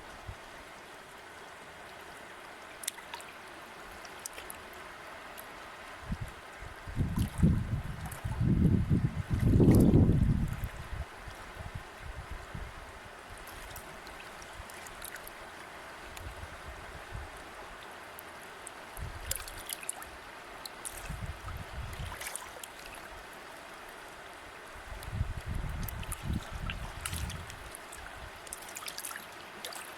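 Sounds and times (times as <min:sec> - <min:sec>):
stream water flowing: 0:00.0 - 0:29.9
small water splashes: 0:02.6 - 0:06.0, 0:07.0 - 0:08.5, 0:09.3 - 0:11.4, 0:13.3 - 0:16.3, 0:17.8 - 0:29.9.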